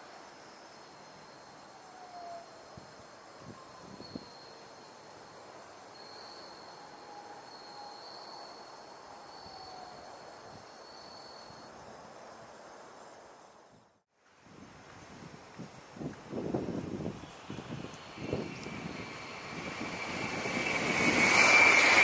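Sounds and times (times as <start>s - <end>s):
insects trilling: 16.3s - 22.0s.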